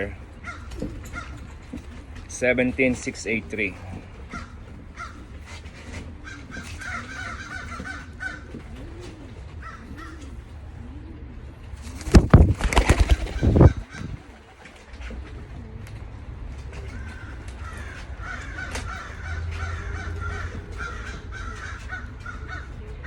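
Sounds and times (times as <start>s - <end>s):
pigeons cooing: 0.0s - 23.0s
flurry of rustling and thumps: 11.8s - 14.2s.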